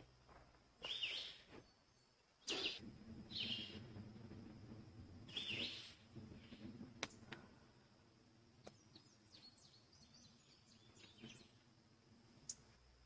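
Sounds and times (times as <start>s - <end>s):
faint bird chirps: 0.8s - 3.9s, 5.3s - 6.8s, 8.6s - 11.6s.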